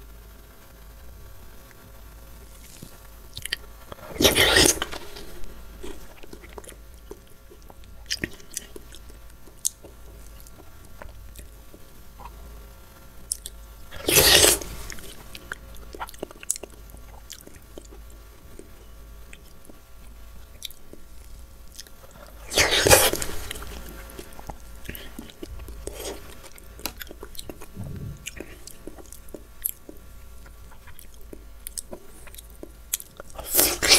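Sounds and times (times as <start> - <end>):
chewing juicy fruit: 2.5 - 12.4, 13.2 - 33.9
juicy bites: 22.4 - 29.2.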